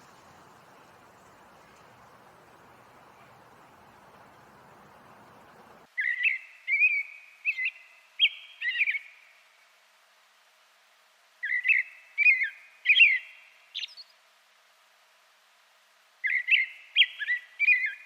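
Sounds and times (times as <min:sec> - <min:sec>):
songbird whistling: 0:00.0 - 0:08.9
faint hiss: 0:00.0 - 0:18.0.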